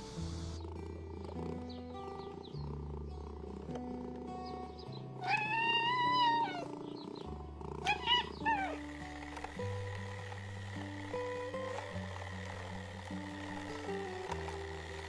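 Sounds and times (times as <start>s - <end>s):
cartoon cat meowing: 5.2s - 6.7s, 7.8s - 8.8s.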